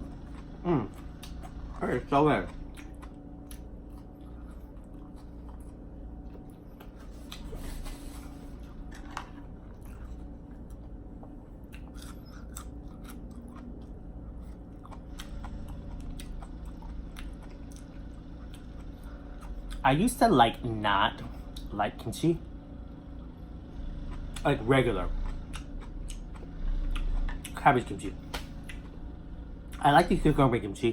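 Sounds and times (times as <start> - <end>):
person chewing crunchy food: 0.0 - 19.8, 25.1 - 27.6
low hum: 0.0 - 30.9.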